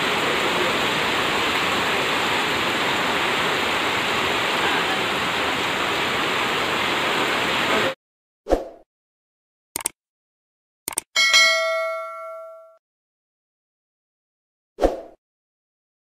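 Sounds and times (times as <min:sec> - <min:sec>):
heavy rain pouring: 0:00.0 - 0:08.0.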